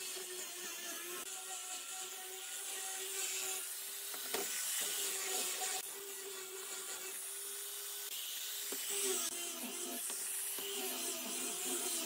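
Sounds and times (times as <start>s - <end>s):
angle grinder whining: 0.0s - 12.0s.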